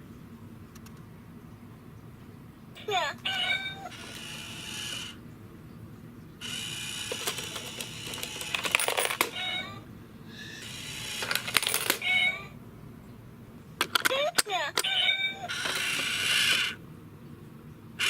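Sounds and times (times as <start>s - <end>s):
small motor whirring and clicking: 3.9s - 5.2s, 6.4s - 9.4s, 10.4s - 12.0s, 15.5s - 16.8s.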